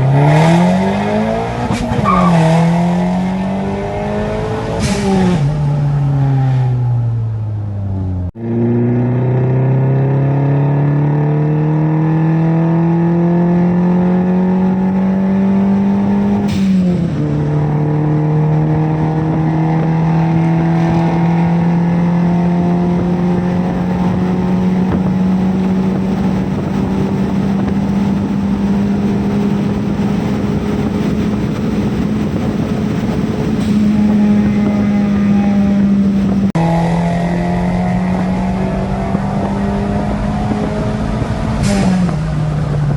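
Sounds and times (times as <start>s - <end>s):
car engine at full throttle: 0.0s - 42.9s.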